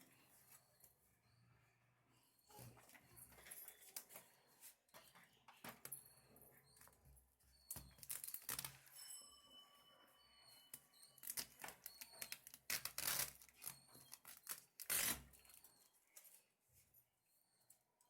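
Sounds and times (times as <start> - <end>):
packaging rustling and tearing: 8.0 - 8.8.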